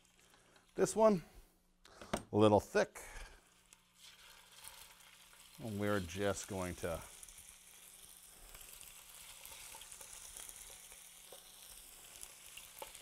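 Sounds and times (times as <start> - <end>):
meat sizzling in oil: 0.0 - 0.9, 3.3 - 13.0.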